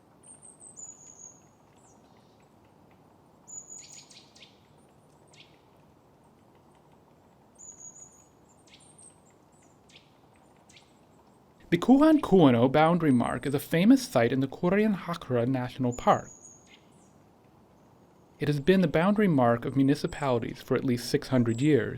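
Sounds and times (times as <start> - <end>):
faint steady hiss: 0.0 - 21.9
small songbird singing: 0.2 - 2.5, 3.4 - 5.7, 7.5 - 13.6, 15.6 - 17.2.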